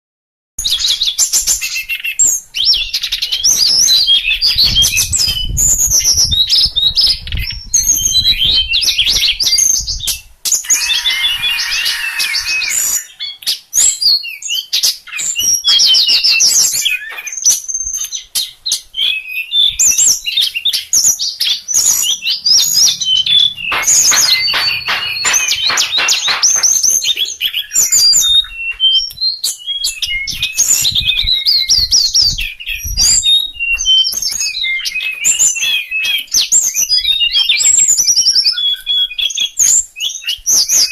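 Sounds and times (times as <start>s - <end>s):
songbird singing: 0.6s - 40.9s.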